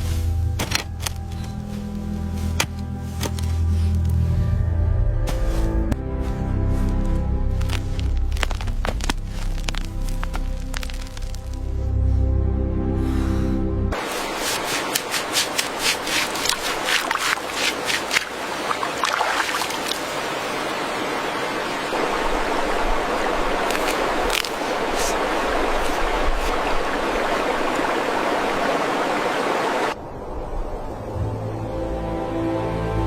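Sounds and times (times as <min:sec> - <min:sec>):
running water rushing: 0:14.0 - 0:30.0
sharp clicks or splashes: 0:14.5 - 0:20.2, 0:23.6 - 0:26.6.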